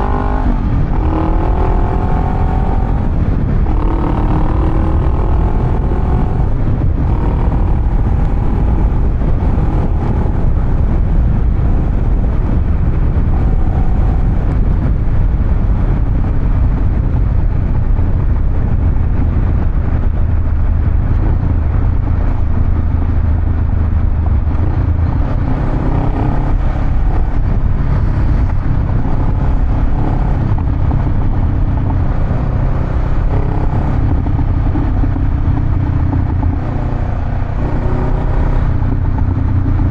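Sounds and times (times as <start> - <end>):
motorcycle engine rumbling: 0.0 - 39.9.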